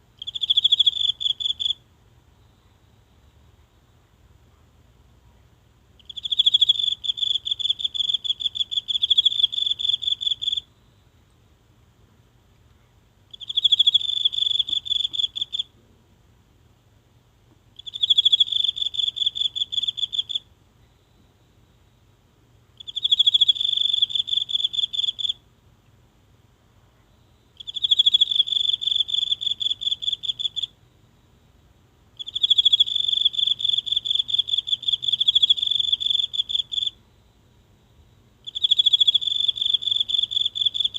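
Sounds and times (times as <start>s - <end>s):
insect trilling: 6.0s - 10.6s, 13.3s - 15.7s, 17.8s - 20.4s, 22.8s - 25.4s, 27.6s - 30.7s, 32.2s - 37.0s, 38.4s - 40.9s.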